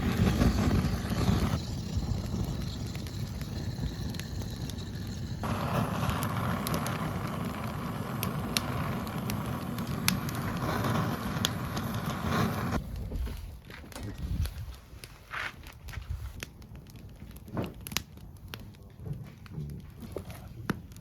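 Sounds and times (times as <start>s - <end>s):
low fire rumble: 0.0s - 21.0s
wood fire crackling and popping: 0.0s - 21.0s.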